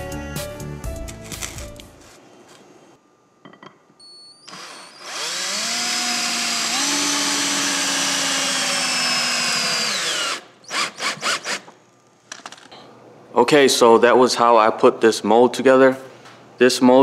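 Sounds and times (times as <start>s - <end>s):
power drill spinning: 4.4s - 11.8s.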